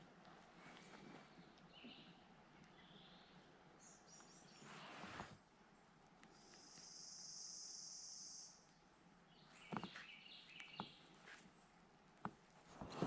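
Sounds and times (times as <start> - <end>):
faint chirps: 6.3 - 11.2.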